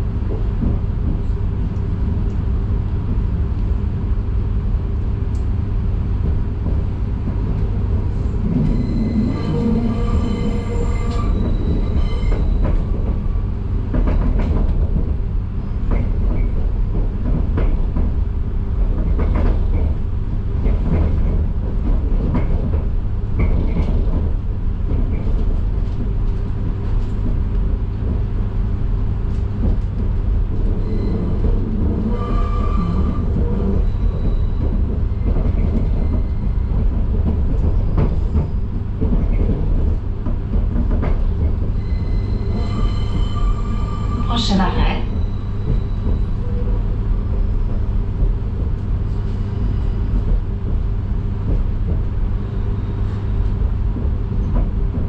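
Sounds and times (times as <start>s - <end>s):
train wheels rumbling on track: 0.0s - 55.0s
rail clicks: 6.1s - 28.5s, 29.1s - 49.4s
train wheel squeal: 8.2s - 13.6s, 30.6s - 39.5s, 41.6s - 47.3s, 49.1s - 50.4s, 52.4s - 53.6s.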